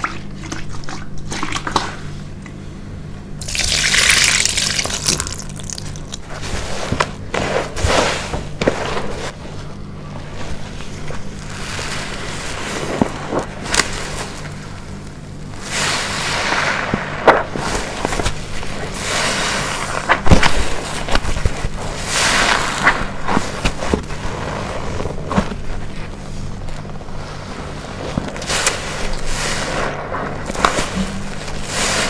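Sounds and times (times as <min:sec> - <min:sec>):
wet sponge squeezed hissing: 0:03.4 - 0:06.8.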